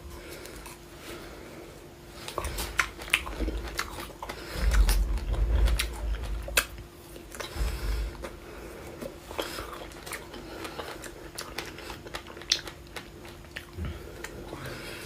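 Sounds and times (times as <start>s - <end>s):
person chewing food: 0.0s - 15.0s
low rumble: 4.4s - 6.8s
wet mouth clicks: 9.4s - 14.4s.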